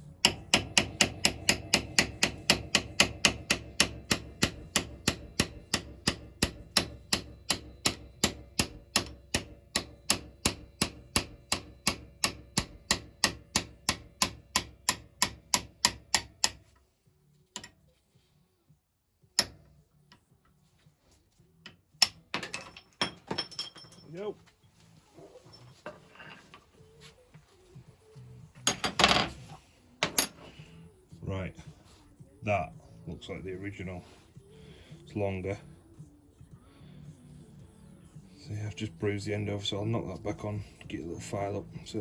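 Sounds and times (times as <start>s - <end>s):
hammer tapping metal punch: 0.2s - 16.8s, 19.4s - 19.7s.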